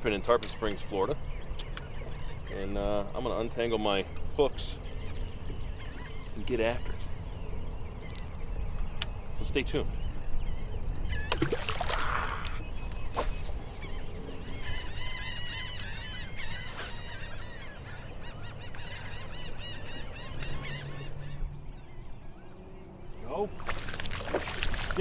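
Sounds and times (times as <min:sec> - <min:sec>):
birds honking: 0:10.5 - 0:22.1.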